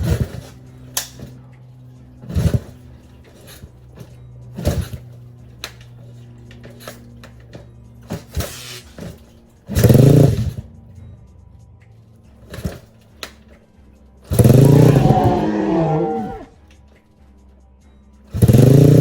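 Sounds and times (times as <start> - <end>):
motorbike engine revving: 0.0 - 1.4, 2.2 - 3.7, 4.5 - 5.1, 8.1 - 10.7, 14.3 - 16.6, 18.3 - 19.0.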